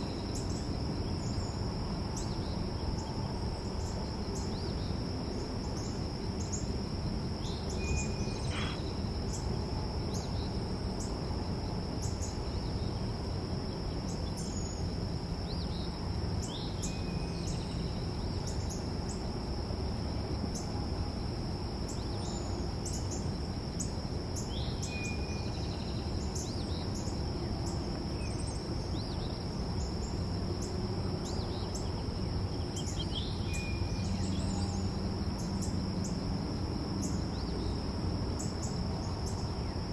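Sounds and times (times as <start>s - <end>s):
crickets trilling: 0.0s - 39.9s
bird chirps: 7.5s - 8.9s.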